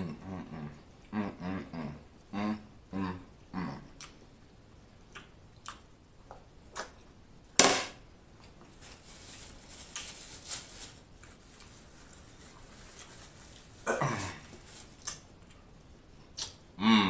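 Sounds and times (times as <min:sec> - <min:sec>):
chewing with wet clicks: 0:03.9 - 0:07.0, 0:16.3 - 0:16.6.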